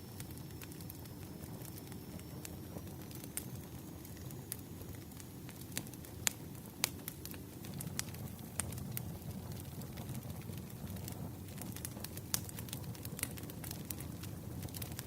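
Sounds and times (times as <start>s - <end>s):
firewood crackling and popping: 0.0s - 15.0s
low rumble of flames: 0.0s - 15.0s.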